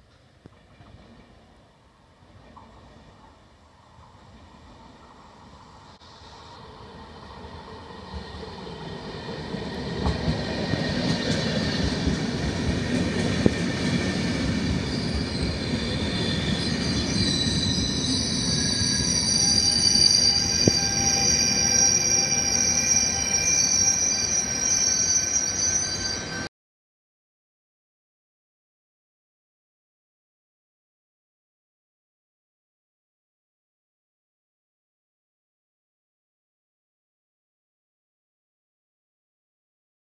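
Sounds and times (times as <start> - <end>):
train rumble: 0.1 - 22.5.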